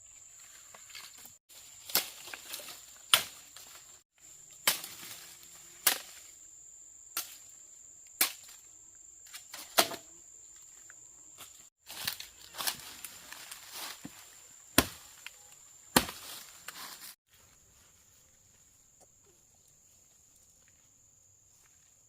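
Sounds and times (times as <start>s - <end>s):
insects buzzing: 0.0s - 22.0s
wood chopping strikes: 1.8s - 3.8s, 4.6s - 5.2s, 5.8s - 6.2s, 8.2s - 8.6s, 9.3s - 10.1s, 14.8s - 16.8s.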